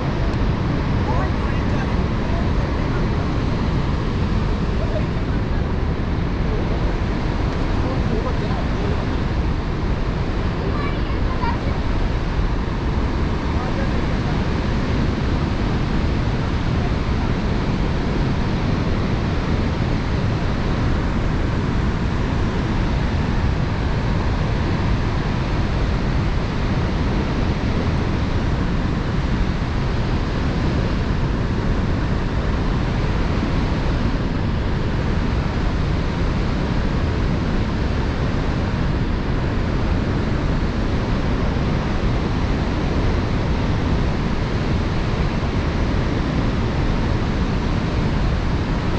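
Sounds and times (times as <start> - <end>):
waterfall roaring: 0.0 - 26.4
wind on microphone: 0.0 - 48.9.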